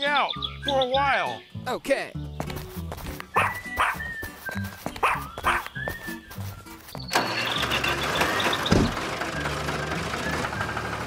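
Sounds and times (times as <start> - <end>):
light background music: 0.0 - 11.0
cartoon dog barking: 3.4 - 4.0, 5.0 - 5.6
tractor engine running: 6.4 - 11.0.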